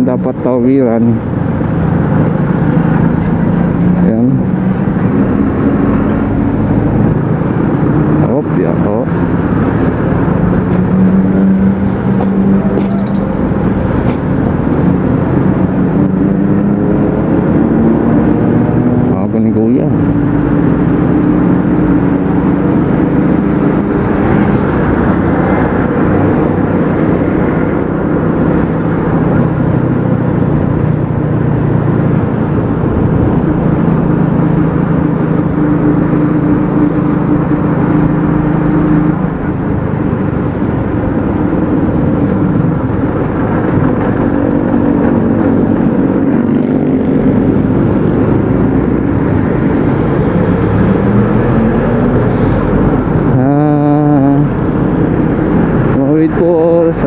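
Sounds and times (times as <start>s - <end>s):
road noise: 0.0s - 57.0s
wind noise: 19.8s - 56.9s.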